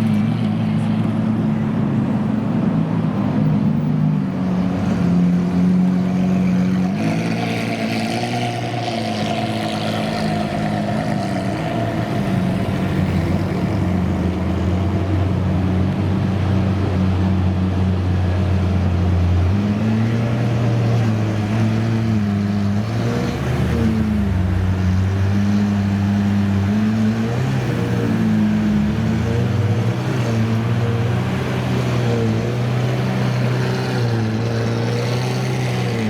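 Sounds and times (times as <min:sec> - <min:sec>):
car engines idling: 0:08.6 - 0:19.6, 0:22.7 - 0:36.0.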